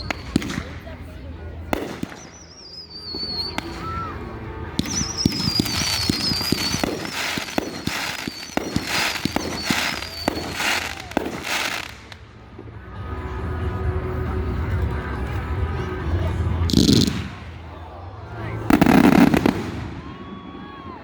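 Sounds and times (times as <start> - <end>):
firework bangs: 1.7 - 2.5, 4.8 - 12.3, 18.6 - 21.0
firework crackling bursts: 4.8 - 12.3, 18.7 - 20.5.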